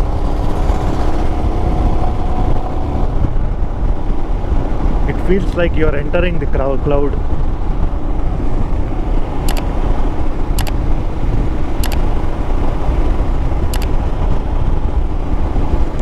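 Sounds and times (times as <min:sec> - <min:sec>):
motorcycle engine running: 0:00.0 - 0:16.0
wind rushing on microphone: 0:00.0 - 0:16.0
short high clicks: 0:10.6 - 0:10.8, 0:11.8 - 0:12.0, 0:13.7 - 0:14.0.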